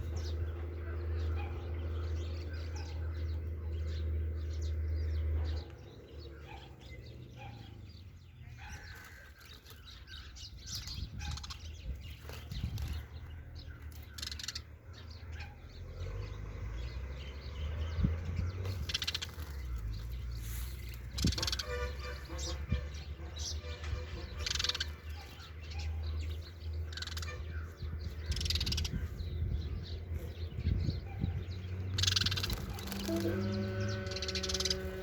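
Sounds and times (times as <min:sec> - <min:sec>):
sparrows chirping: 0:00.0 - 0:35.0.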